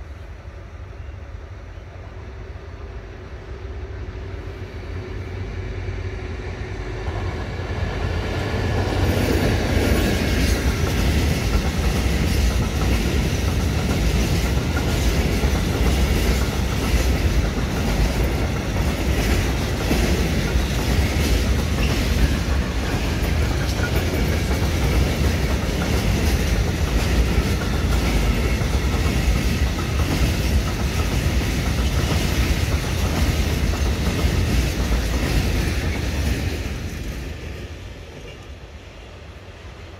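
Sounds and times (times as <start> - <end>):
freight train rumble: 0.0 - 39.9
wheels clacking over rail joints: 9.0 - 37.5.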